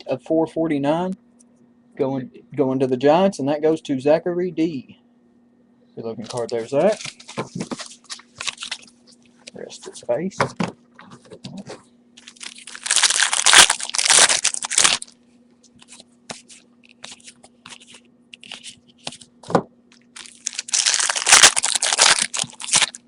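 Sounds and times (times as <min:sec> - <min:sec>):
foil wrapper crinkling: 0:06.3 - 0:09.1, 0:12.2 - 0:15.2, 0:15.8 - 0:19.3, 0:19.9 - 0:23.0.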